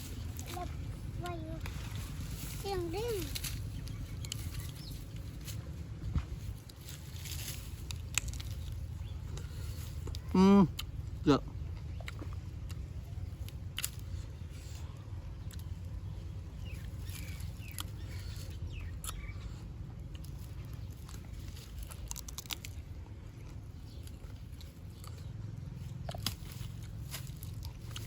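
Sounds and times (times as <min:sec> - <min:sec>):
steady low rumble: 0:00.0 - 0:28.0
crunching bites and chewing: 0:06.6 - 0:28.0.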